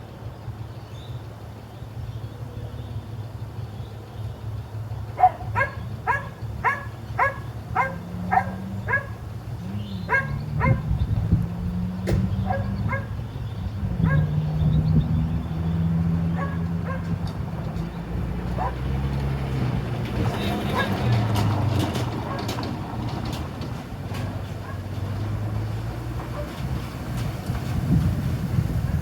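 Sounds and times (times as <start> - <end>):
low engine hum: 0.0 - 29.0
dog barking: 5.2 - 9.2, 10.1 - 10.9, 12.4 - 13.2, 14.0 - 14.4, 16.3 - 17.2, 18.5 - 18.9, 20.7 - 21.0, 22.2 - 22.5, 26.3 - 26.6.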